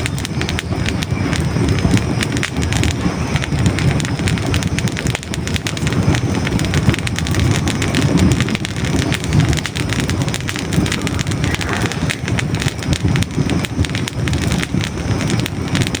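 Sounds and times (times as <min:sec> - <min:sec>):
logs crackling and popping: 0:00.0 - 0:16.0
low rumble of flames: 0:00.0 - 0:16.0.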